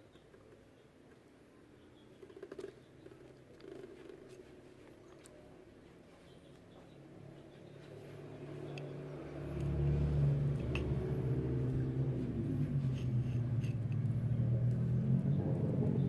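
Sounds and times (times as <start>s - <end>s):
diesel engine running: 7.8s - 16.0s.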